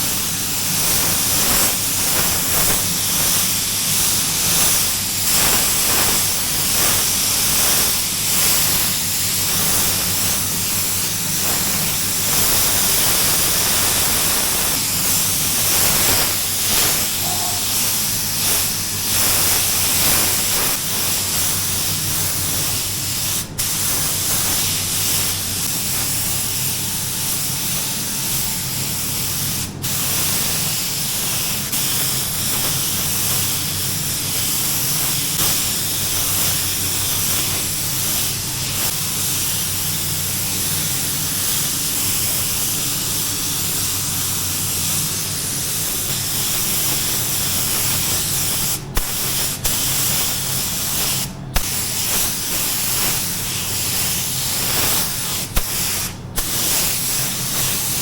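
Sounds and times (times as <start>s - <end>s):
spray gun hissing: 0.0s - 58.0s.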